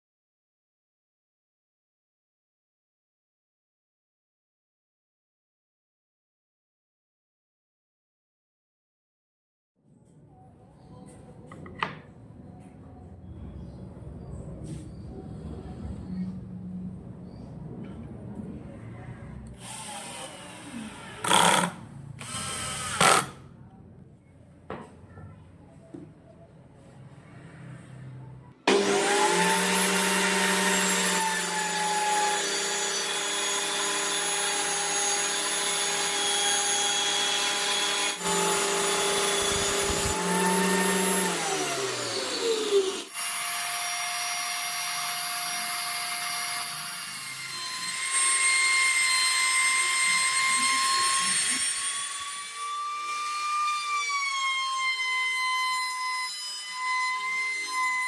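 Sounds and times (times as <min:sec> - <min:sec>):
electric power tool motor: 0:19.6 - 0:23.4, 0:28.7 - 0:55.8.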